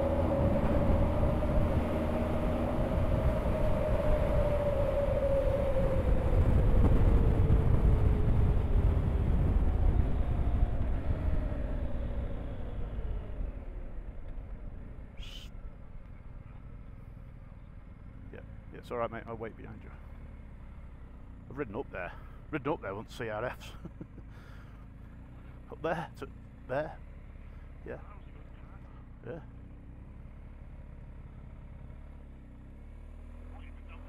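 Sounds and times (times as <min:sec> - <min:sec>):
wind rumble on microphone: 0:00.0 - 0:14.8
motorcycle engine running: 0:05.6 - 0:22.8.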